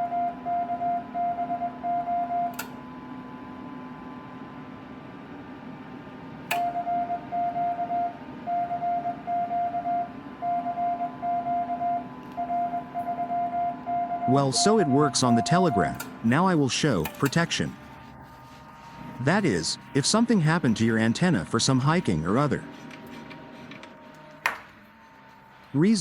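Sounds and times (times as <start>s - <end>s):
morse code beeps: 0.0s - 2.5s, 6.6s - 22.7s
steady low hum: 0.0s - 26.0s.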